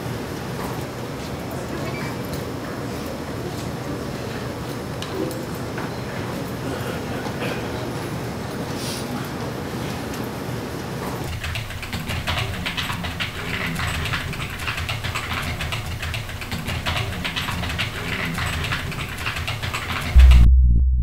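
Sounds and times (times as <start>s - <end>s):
steady low hum: 11.3s - 21.0s.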